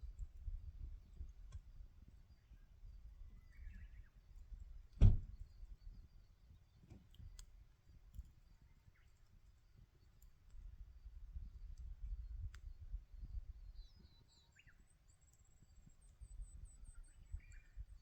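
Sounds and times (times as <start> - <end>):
wood fire crackling: 4.3 - 12.9
loud sharp pop: 5.0 - 5.2.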